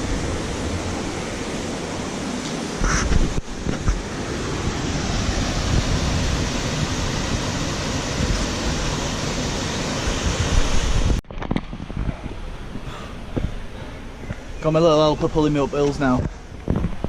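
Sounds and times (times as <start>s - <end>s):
river water rushing: 0.0s - 11.2s
wind buffeting microphone: 0.0s - 17.0s.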